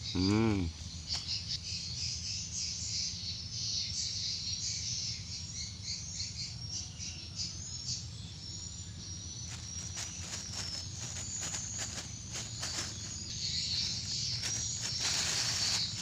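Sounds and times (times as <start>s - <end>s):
insects chirping: 0.0s - 16.0s
steady low hum: 7.7s - 16.0s.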